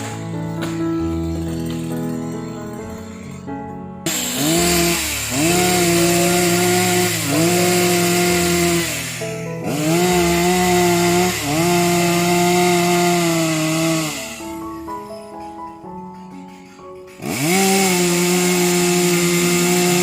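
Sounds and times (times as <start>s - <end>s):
background music: 0.0s - 20.0s
chainsaw cutting wood: 4.0s - 14.9s, 17.1s - 20.0s.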